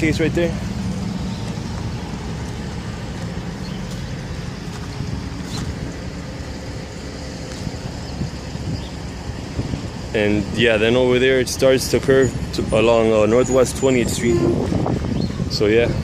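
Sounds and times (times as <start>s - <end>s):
road traffic rumble: 0.0s - 16.0s
wind on microphone: 7.6s - 10.1s, 14.0s - 16.0s.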